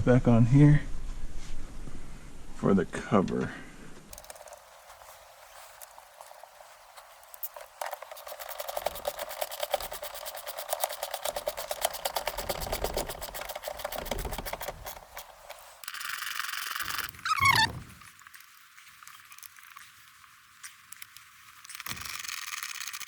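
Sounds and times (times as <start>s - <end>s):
ratchet clicking: 7.3s - 17.6s, 21.7s - 23.0s.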